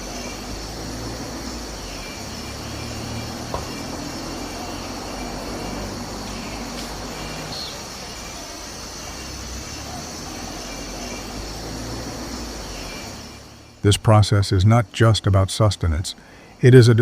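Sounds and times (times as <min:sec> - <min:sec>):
insects buzzing: 0:00.0 - 0:17.0.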